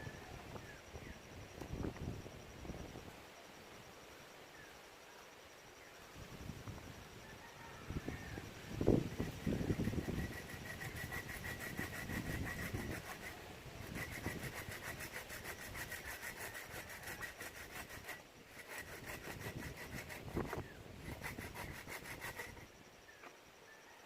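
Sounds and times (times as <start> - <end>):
hand saw cutting wood: 9.2 - 22.7.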